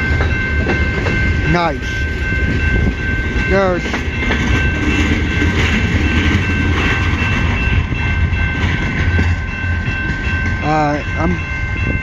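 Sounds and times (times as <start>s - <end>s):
train cars rolling past: 0.0s - 12.0s.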